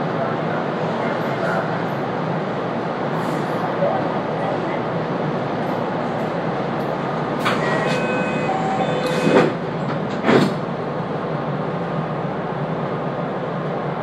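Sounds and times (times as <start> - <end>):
train interior rumble: 0.0 - 14.0
whining tones: 7.5 - 9.4.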